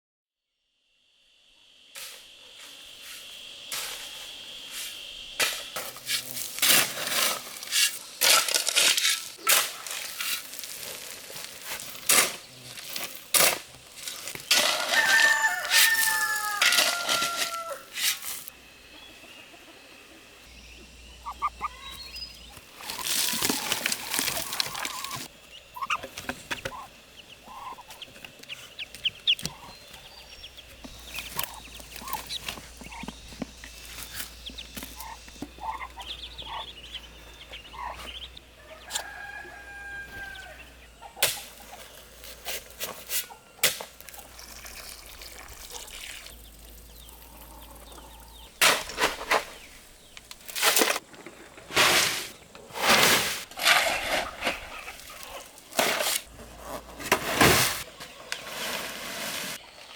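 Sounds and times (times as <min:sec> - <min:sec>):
insect trill: 0:00.6 - 0:09.4, 0:10.0 - 0:51.0
rooster crowing: 0:14.6 - 0:18.0, 0:38.5 - 0:41.0
chickens clucking: 0:18.8 - 0:44.4, 0:45.7 - 0:50.3, 0:53.7 - 0:57.0.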